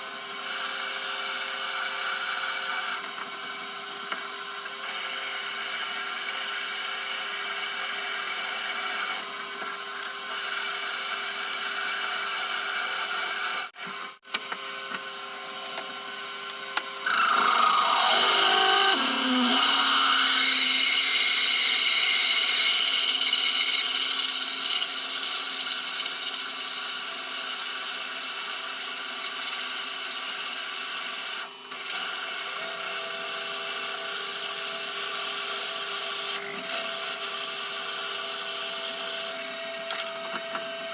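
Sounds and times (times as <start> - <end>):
metal lathe cutting steel: 17.0 - 25.0
whine falling in pitch: 17.1 - 21.1.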